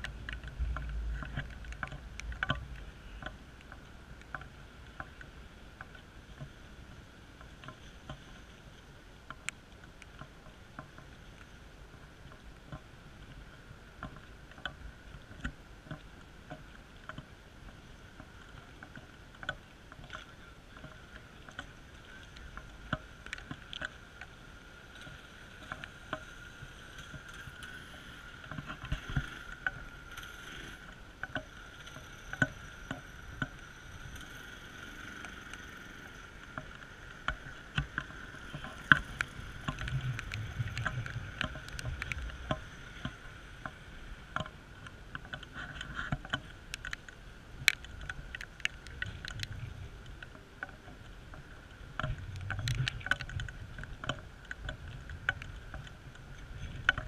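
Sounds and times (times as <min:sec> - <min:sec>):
low rumble: 0:00.0 - 0:04.2
raindrops tapping on camera: 0:00.0 - 0:06.6, 0:09.2 - 0:57.0
rain hiss: 0:00.0 - 0:09.2, 0:20.0 - 0:57.0.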